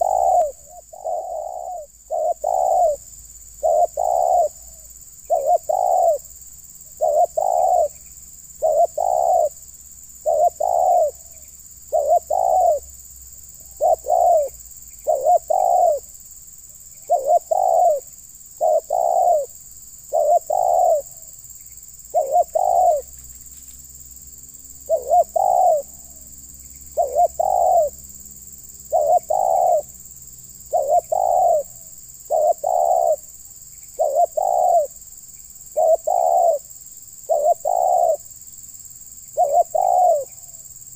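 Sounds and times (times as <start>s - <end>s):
dove cooing: 0.0s - 6.3s, 6.9s - 8.0s, 8.6s - 9.6s, 10.2s - 12.9s, 13.6s - 16.1s, 17.0s - 21.3s, 22.1s - 23.2s, 24.8s - 26.2s, 26.9s - 28.0s, 28.9s - 29.9s, 30.7s - 33.3s, 34.0s - 35.0s, 35.7s - 36.7s, 37.3s - 38.3s, 39.4s - 40.6s.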